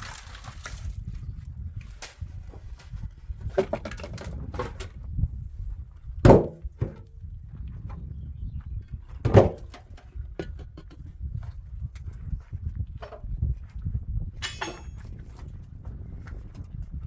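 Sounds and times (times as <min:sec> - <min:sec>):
irregular knocks and thuds: 0:03.4 - 0:05.0, 0:06.2 - 0:07.2, 0:09.2 - 0:11.1.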